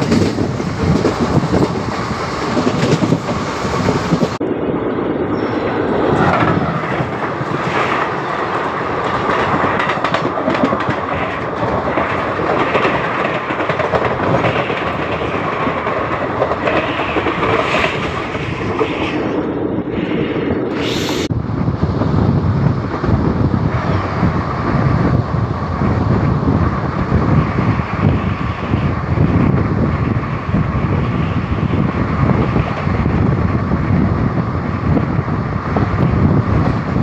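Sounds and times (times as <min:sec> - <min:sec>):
express train rushing past: 0:00.0 - 0:37.0
train wheel and rail rumble: 0:00.0 - 0:37.0
wind on the microphone: 0:00.0 - 0:37.0
brief sharp hiss: 0:20.7 - 0:21.3.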